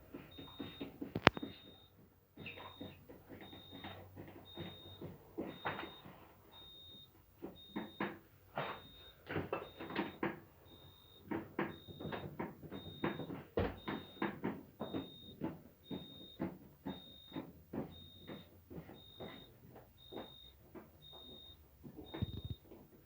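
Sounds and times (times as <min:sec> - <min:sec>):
refrigerator alarm beeping: 0:00.1 - 0:23.0.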